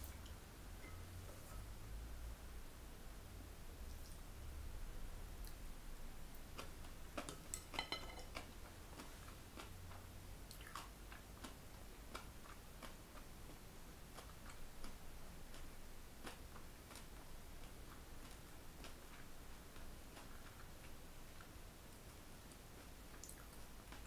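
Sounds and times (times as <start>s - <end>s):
chopsticks clinking on ceramic bowl: 7.5s - 8.4s
chewing with mouth clicks: 8.3s - 24.0s.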